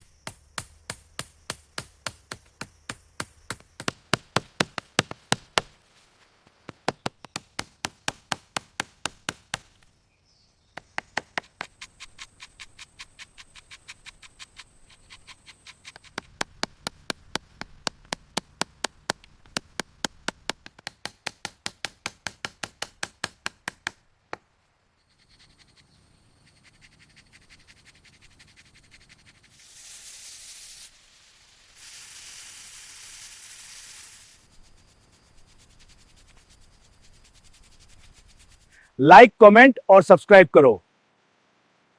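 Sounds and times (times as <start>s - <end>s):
sharp taps on wood: 0.6s - 5.7s, 6.7s - 9.8s, 10.8s - 14.6s, 15.8s - 24.4s.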